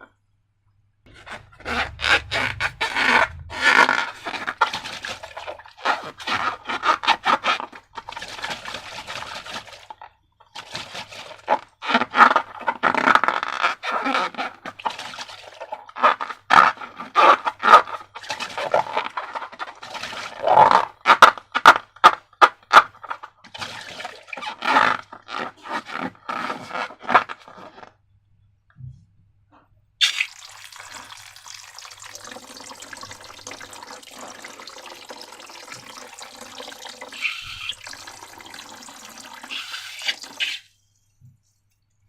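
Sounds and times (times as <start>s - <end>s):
liquid pouring: 1.6s - 10.0s, 23.6s - 24.6s, 30.0s - 40.8s.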